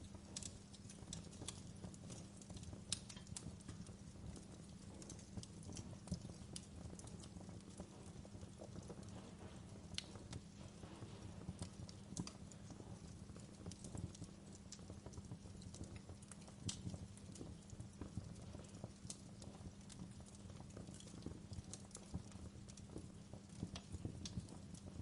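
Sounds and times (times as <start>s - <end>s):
low steady rumble: 0.0s - 19.1s
wood fire crackling: 0.0s - 25.0s.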